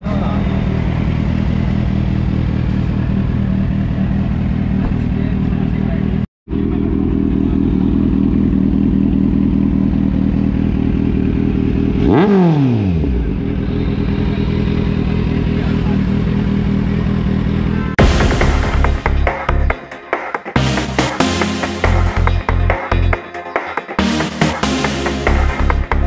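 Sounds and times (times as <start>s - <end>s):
motorcycle engine idling: 0.0s - 18.1s
loud electronic music: 18.0s - 26.0s.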